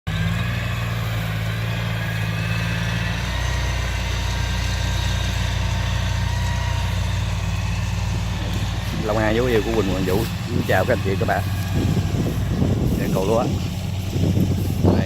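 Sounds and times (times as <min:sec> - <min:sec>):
combine harvester diesel engine: 0:00.1 - 0:15.0.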